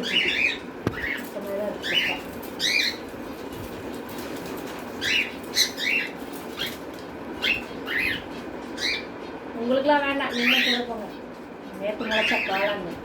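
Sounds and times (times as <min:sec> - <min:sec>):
cockatiels chirping: 0:00.0 - 0:03.1, 0:05.0 - 0:06.8, 0:07.4 - 0:09.1.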